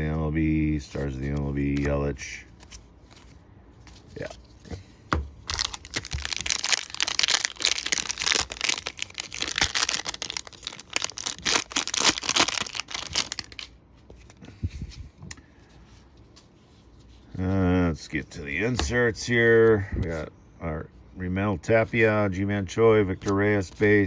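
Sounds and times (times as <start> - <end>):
foil wrapper tearing and crinkling: 5.5 - 13.7.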